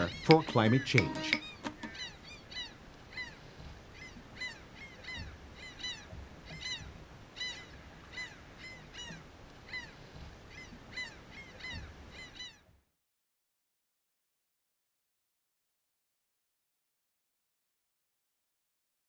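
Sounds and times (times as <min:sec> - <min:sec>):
flock of birds calling: 0:00.0 - 0:12.6.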